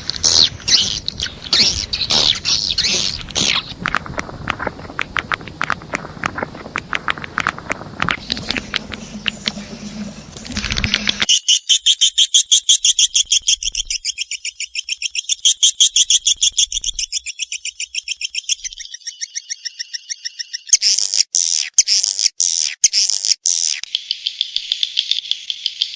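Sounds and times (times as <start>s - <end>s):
scattered chirps and clicks: 0.0s - 11.3s.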